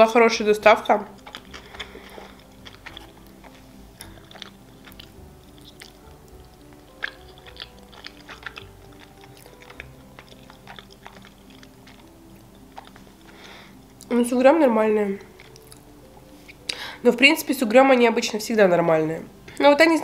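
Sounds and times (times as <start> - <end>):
slow background music: 0.0 - 20.0
chewing with wet mouth clicks: 1.1 - 14.1, 15.3 - 16.8.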